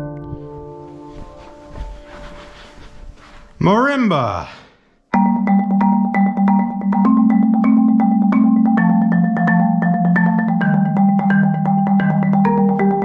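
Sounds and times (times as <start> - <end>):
marimba melody: 5.1 - 13.0.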